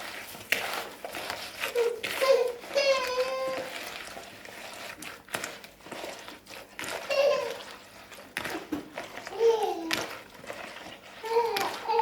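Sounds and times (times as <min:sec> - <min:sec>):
fruit rubbed with sugar by hand: 0:00.0 - 0:12.0
child calling out: 0:01.8 - 0:03.7.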